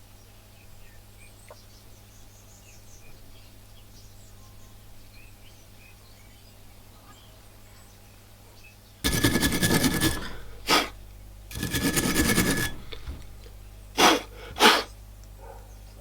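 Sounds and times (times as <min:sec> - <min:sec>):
brush scrubbing rust off metal: 0:09.1 - 0:14.9.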